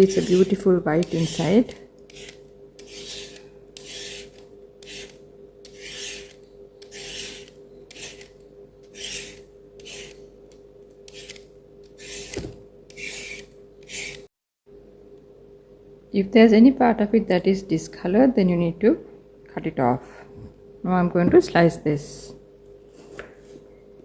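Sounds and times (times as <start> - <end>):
blade scraping root skin: 0.0 - 10.2, 11.1 - 11.4, 12.0 - 14.3.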